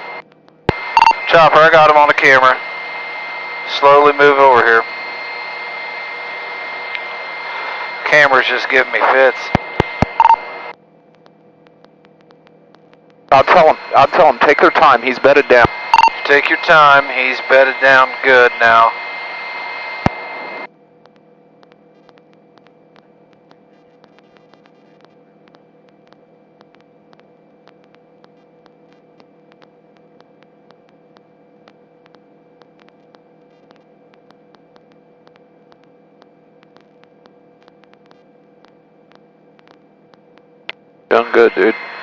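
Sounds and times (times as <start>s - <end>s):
crackling radio clicks: 0.0s - 1.2s, 8.4s - 16.4s, 19.9s - 40.9s
faint electrical hum: 0.0s - 42.0s.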